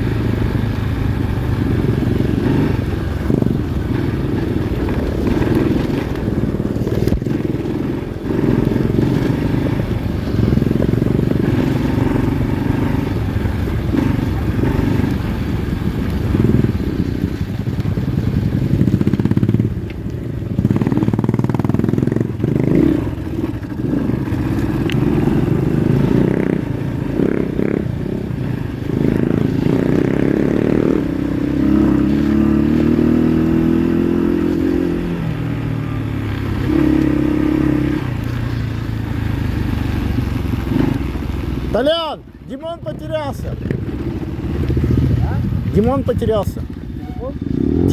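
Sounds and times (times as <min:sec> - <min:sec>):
motorbike engine revving: 0:00.0 - 0:42.2, 0:42.8 - 0:47.9.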